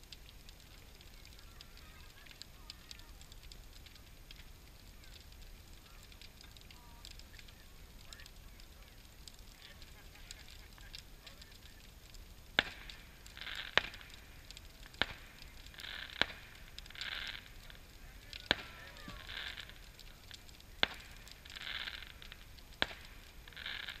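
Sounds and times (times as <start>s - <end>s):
faint hissing: 0.0s - 24.0s
fire popping: 0.0s - 24.0s
wood fire crackling: 0.0s - 24.0s.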